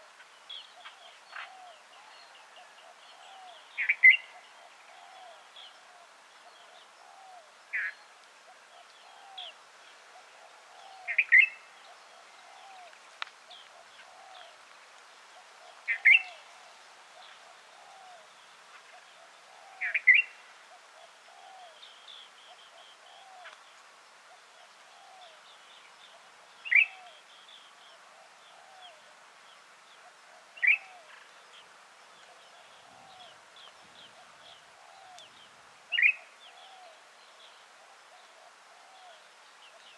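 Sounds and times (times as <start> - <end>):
bird calling with sharp notes: 30.6 - 31.1, 35.9 - 36.9.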